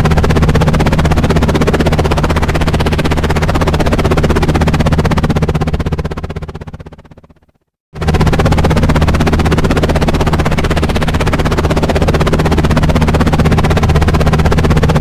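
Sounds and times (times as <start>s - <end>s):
helicopter rotor chopping: 0.0s - 7.4s, 8.0s - 15.0s.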